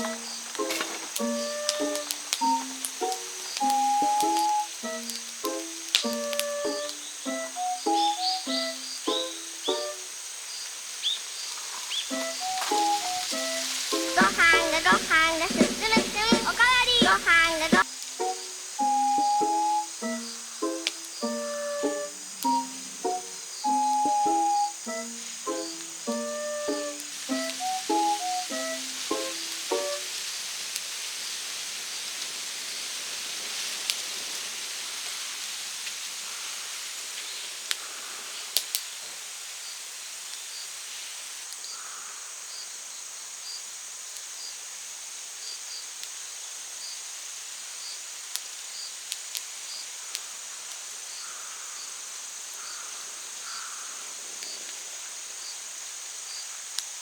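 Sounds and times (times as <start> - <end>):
sharp snaps: 0.0 - 10.0, 12.1 - 18.2
crickets buzzing: 0.0 - 57.0
faint insect chirp: 0.0 - 57.0.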